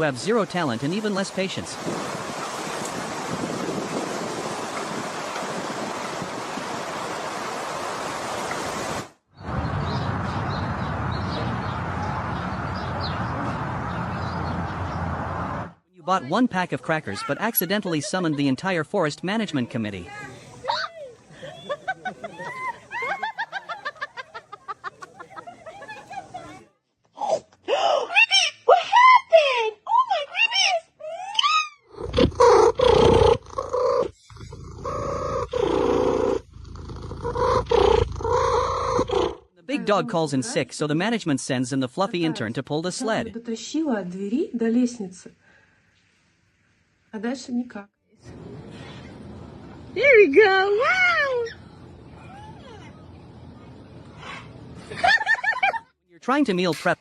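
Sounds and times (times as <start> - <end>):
birds chirping: 9.4 - 15.3
rough drawn-out animal calls: 31.3 - 39.4.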